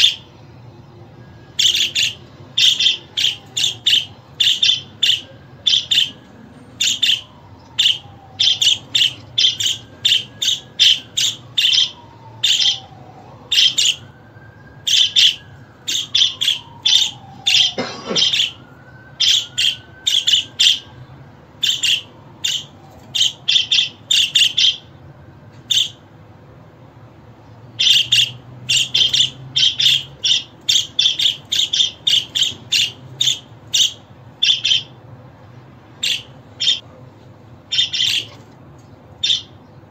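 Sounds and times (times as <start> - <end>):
budgerigar chirping: 1.6 - 6.2, 6.8 - 12.9, 21.6 - 24.9, 25.7 - 26.0, 27.8 - 34.9, 36.0 - 36.8, 37.7 - 38.4, 39.2 - 39.6.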